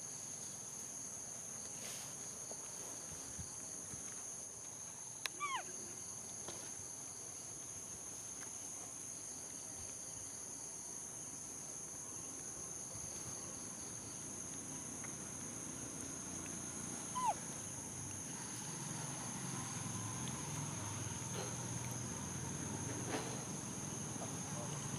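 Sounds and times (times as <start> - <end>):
insects droning: 0.0 - 24.9
short falling calls: 17.2 - 17.4.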